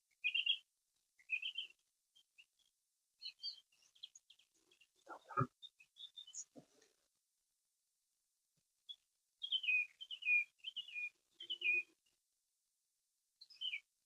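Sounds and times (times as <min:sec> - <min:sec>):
faint songbird singing: 0:00.0 - 0:07.0, 0:08.8 - 0:12.2, 0:13.4 - 0:14.0.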